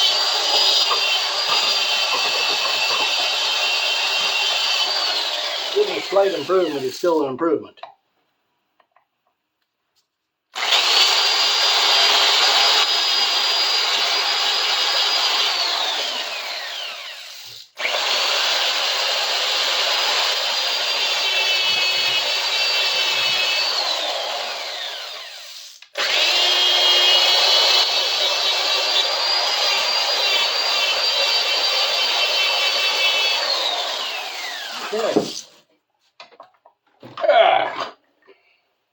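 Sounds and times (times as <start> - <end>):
power tool motor whine: 10.6 - 35.4.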